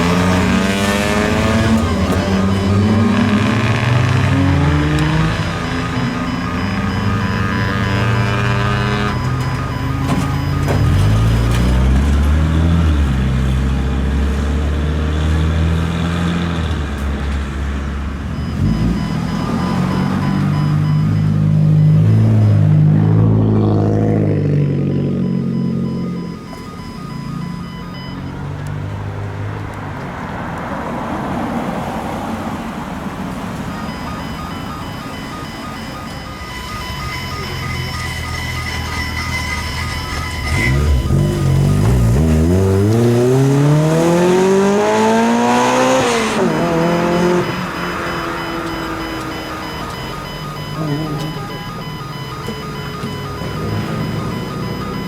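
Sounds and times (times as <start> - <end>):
car engine with loud exhaust: 0.0 - 55.0
car engine running: 33.3 - 55.0.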